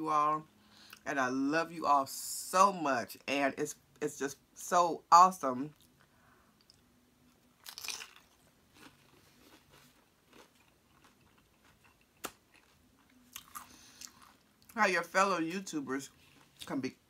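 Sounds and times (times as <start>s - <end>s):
chips being bitten and chewed: 7.6s - 14.5s.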